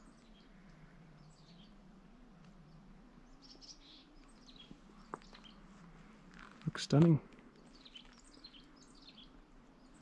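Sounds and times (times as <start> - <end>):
faint high bird chirps: 2.6 - 5.6.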